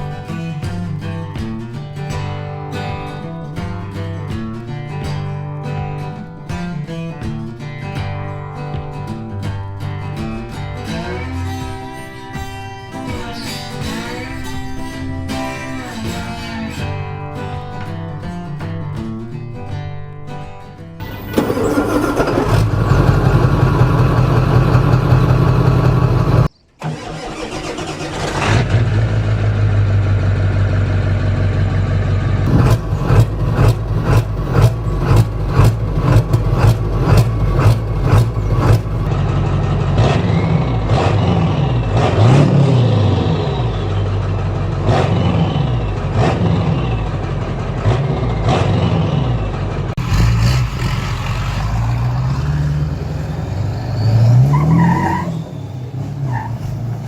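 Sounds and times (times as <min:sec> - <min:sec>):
diesel truck engine revving: 0:21.0 - 0:57.0.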